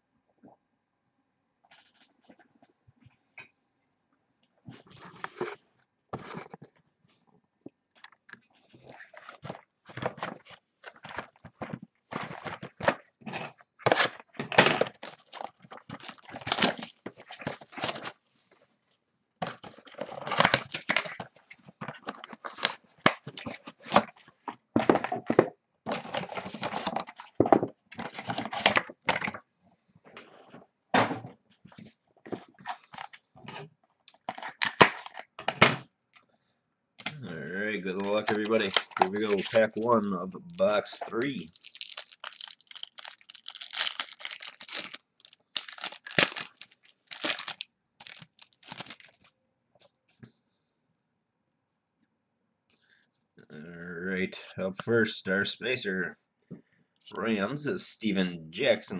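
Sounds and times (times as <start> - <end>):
wrapper crackling and tearing: 13.4 - 18.2, 37.9 - 49.3.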